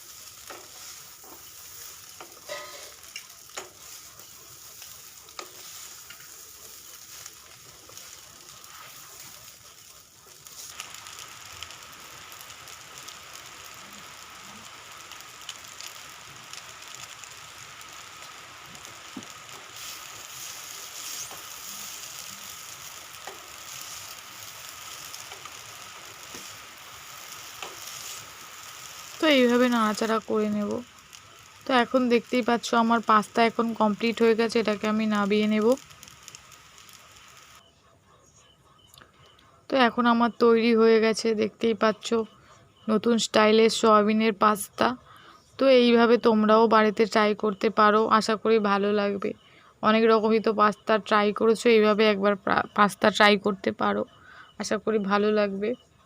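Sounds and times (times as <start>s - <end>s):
food sizzling in a pan: 0.0s - 37.6s.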